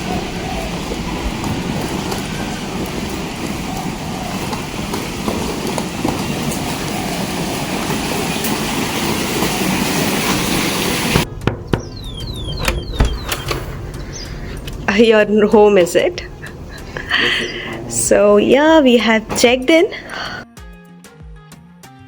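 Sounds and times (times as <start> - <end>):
car moving in rain: 0.0 - 20.3
sharp clicks: 11.3 - 14.9
short falling chirps: 11.7 - 14.6.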